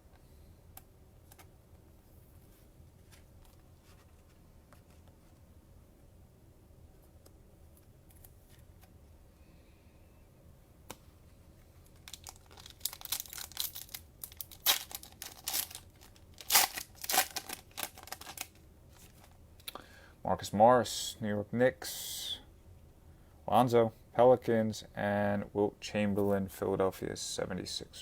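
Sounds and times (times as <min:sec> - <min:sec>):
cellophane wrapper tearing and crinkling: 0:11.8 - 0:19.3.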